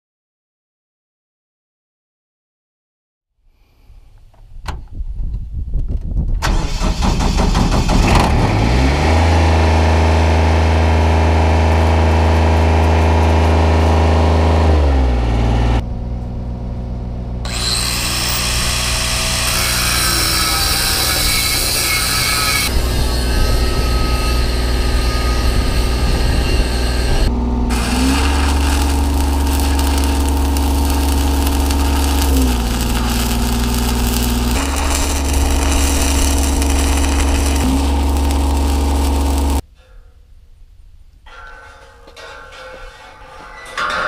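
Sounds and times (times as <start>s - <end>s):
engine cranking and running: 6.4s - 14.7s, 27.2s - 39.6s.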